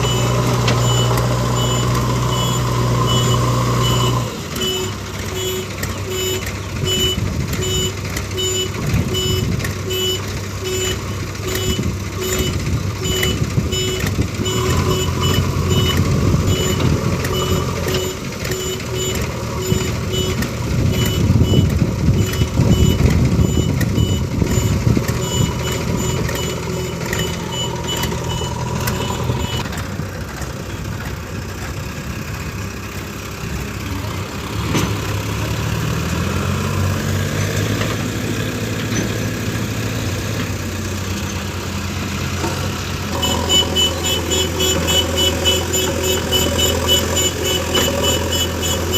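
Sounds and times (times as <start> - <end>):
reversing alarm beeping: 0.0 - 29.7, 43.2 - 48.9
diesel engines running: 0.0 - 48.9.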